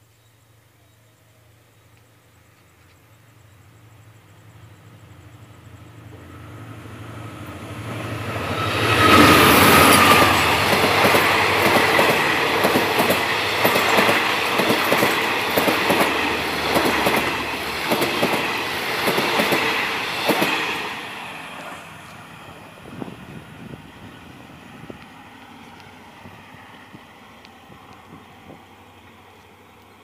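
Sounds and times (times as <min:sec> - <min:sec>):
locomotive engine: 0:06.0 - 0:29.9
train wheels clacking over rail joints: 0:08.8 - 0:20.9.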